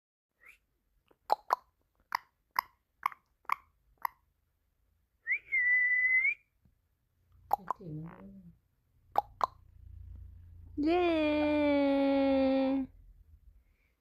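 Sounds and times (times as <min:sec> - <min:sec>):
whistle held at one pitch: 0:05.3 - 0:06.4.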